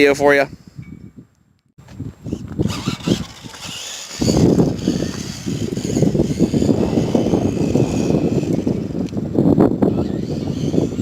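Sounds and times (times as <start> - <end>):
steady rumble on rough ground: 1.4 - 11.0
rc car motor whine: 2.2 - 11.0.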